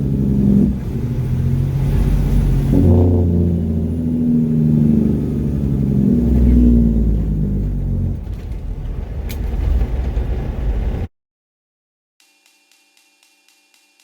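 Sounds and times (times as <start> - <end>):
truck diesel engine running: 0.0 - 11.1.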